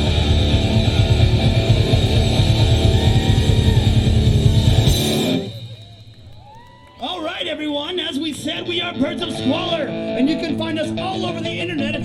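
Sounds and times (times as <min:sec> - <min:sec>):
distorted electric guitars: 0:00.0 - 0:05.8, 0:08.4 - 0:12.0
fast pounding drums: 0:00.0 - 0:06.5.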